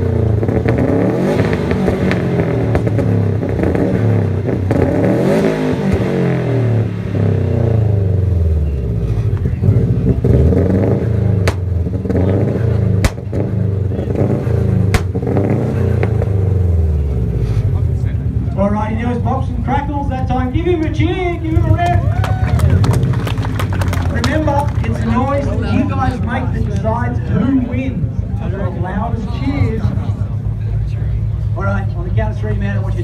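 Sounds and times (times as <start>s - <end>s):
car engine revving hard: 0.0s - 17.8s
sharp exhaust bangs: 0.0s - 18.1s.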